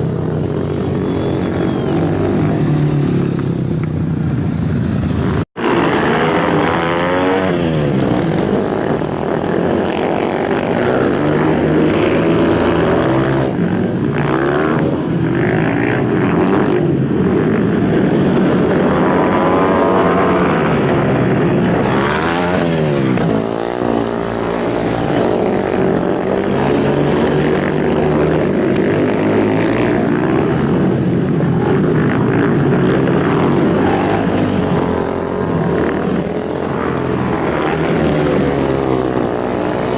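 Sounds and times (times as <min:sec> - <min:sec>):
motorcycle engines revving high: 0:00.0 - 0:39.9.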